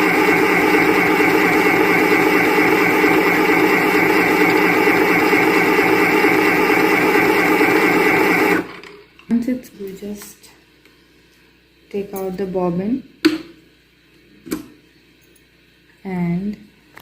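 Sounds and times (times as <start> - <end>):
sewing machine motor running: 0.0 - 8.9.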